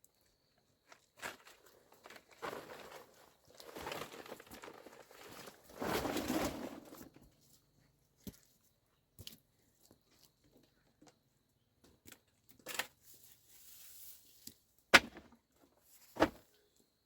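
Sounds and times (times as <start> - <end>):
rustling crinkling handling: 0.9 - 7.0.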